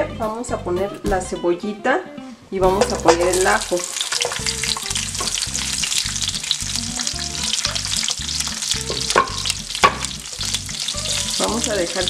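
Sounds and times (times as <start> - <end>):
onion sizzling in hot oil: 2.6 - 12.0
wooden spoon stirring: 2.8 - 12.0.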